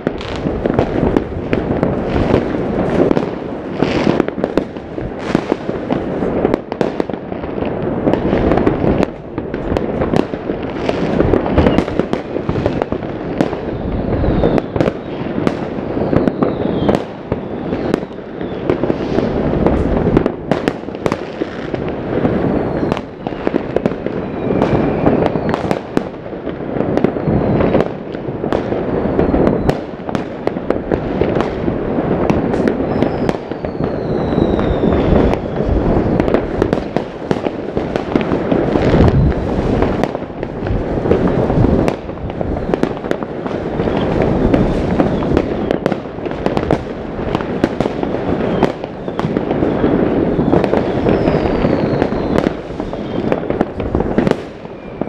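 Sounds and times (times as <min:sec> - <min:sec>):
firework bangs: 0:00.0 - 0:55.0
fireworks rumble and crackle: 0:00.0 - 0:55.0
falling rocket whistles: 0:11.3 - 0:12.0, 0:13.6 - 0:19.4, 0:22.3 - 0:25.8, 0:27.0 - 0:27.9, 0:28.9 - 0:29.9, 0:32.6 - 0:36.8, 0:43.8 - 0:45.9, 0:48.4 - 0:53.6, 0:54.2 - 0:55.0.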